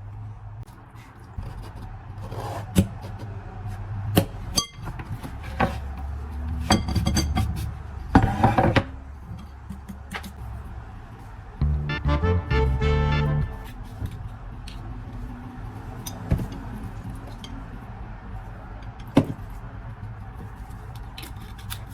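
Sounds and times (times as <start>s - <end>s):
low steady hum: 11.6s - 13.8s.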